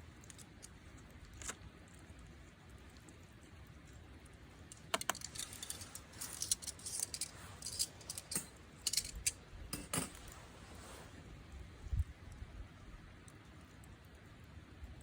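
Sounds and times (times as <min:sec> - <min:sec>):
small hard objects clicking: 0:00.0 - 0:01.8, 0:04.6 - 0:09.4.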